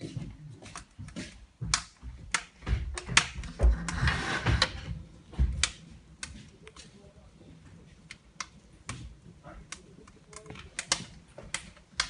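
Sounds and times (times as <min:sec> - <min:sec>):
metal door scraping slide: 0:03.7 - 0:04.8.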